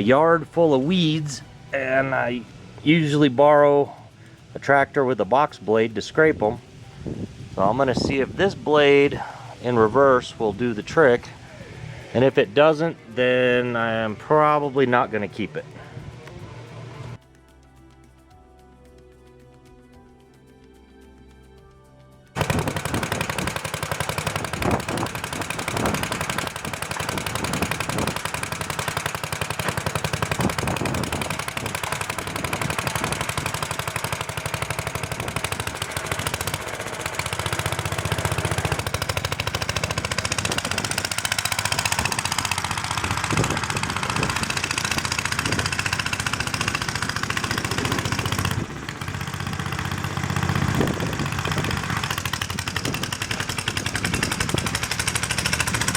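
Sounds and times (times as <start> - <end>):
small engine running: 0.0 - 17.3, 22.4 - 55.9.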